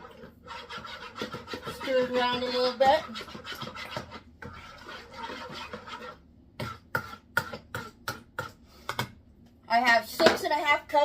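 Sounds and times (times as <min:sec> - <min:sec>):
spoon stirring in bowl: 0:00.0 - 0:09.2.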